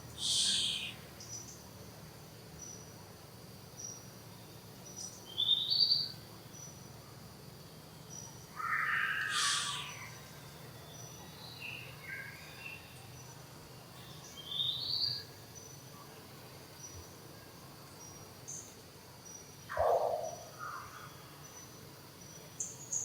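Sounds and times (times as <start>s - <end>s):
high-pitched animal calls: 8.6s - 10.1s.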